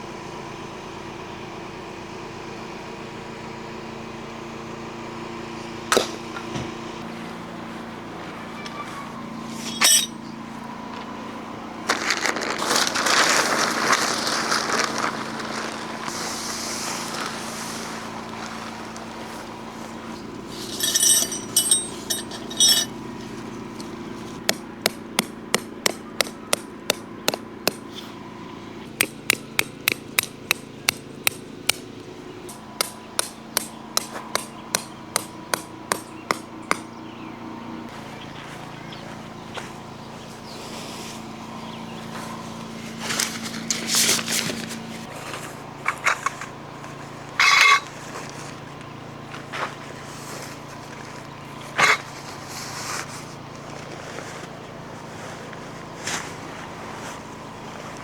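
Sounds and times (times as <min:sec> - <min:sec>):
hammer driving tent stakes: 0:09.4 - 0:11.1, 0:11.9 - 0:28.1, 0:28.9 - 0:36.9
ringing metal clinks: 0:09.6 - 0:10.3, 0:20.6 - 0:23.3
rustling: 0:11.8 - 0:24.4, 0:39.6 - 0:48.7, 0:49.3 - 0:58.0.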